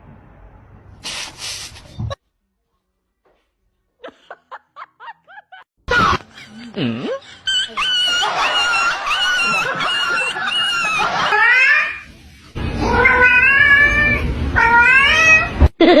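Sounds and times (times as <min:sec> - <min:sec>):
cat yowling: 0:11.2 - 0:12.0, 0:12.8 - 0:15.5.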